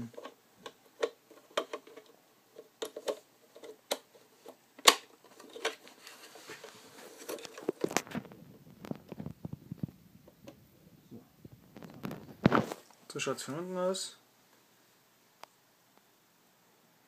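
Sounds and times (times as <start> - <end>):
plastic parts clicking and knocking: 0.0 - 10.6
soft rustling handling noise: 0.0 - 15.6.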